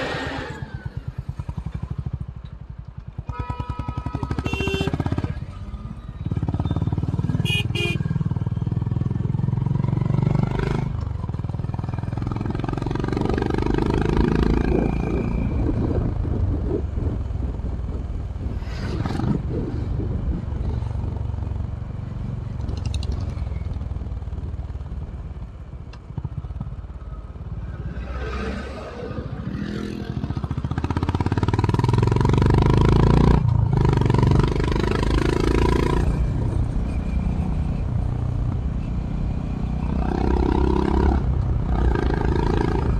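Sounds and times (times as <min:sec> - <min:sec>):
motorcycle engine: 0:00.0 - 0:42.9
wind noise: 0:13.2 - 0:24.8.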